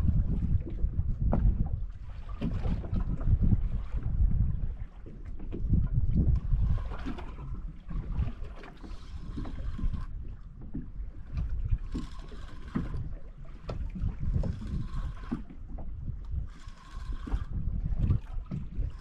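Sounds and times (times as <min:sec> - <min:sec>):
water washing against boat hull: 0:00.0 - 0:19.0
wind buffeting microphone: 0:00.0 - 0:19.0.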